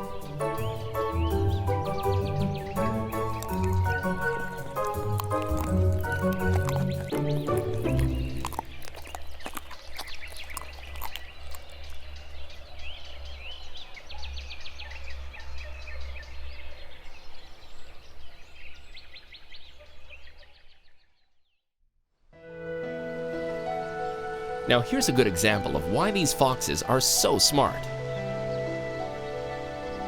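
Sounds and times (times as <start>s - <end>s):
small birds chirping: 0.0s - 21.6s.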